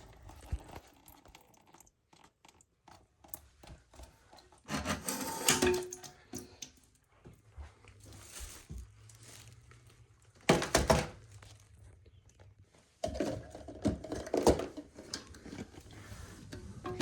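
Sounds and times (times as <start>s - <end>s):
objects clattering and rustling: 4.1s - 6.6s, 7.5s - 17.0s.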